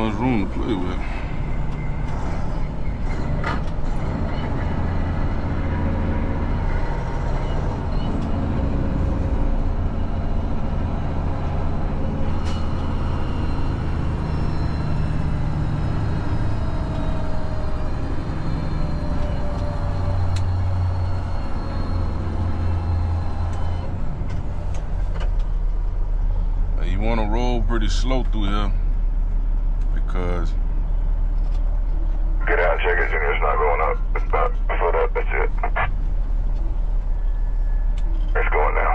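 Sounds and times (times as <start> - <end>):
truck diesel engine running: 31.9 - 38.9.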